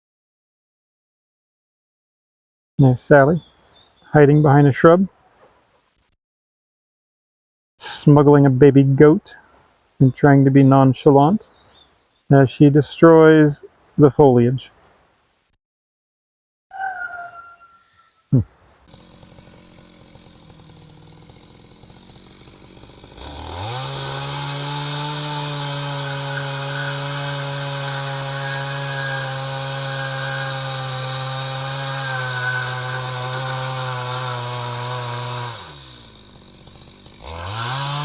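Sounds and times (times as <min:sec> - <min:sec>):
small petrol engine revving: 0:18.9 - 0:38.0.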